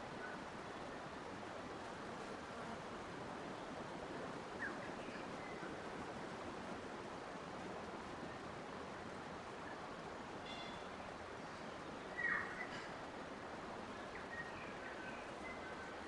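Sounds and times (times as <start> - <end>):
faint bird chirps: 10.4 - 13.0, 13.9 - 16.0.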